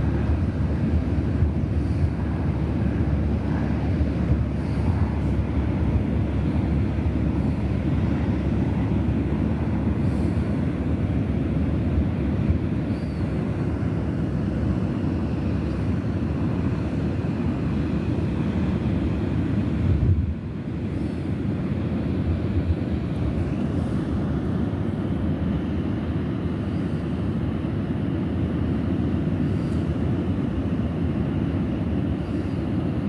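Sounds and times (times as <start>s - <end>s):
wind buffeting microphone: 0.0s - 26.4s.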